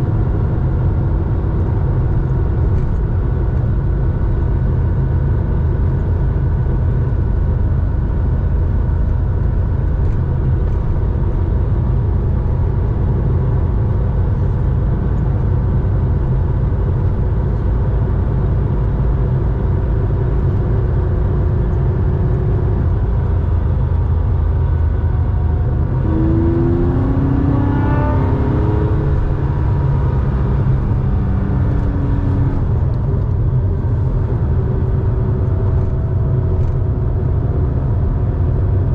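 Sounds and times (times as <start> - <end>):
deep car exhaust drone: 0.0 - 38.9
rising whine: 21.8 - 37.2.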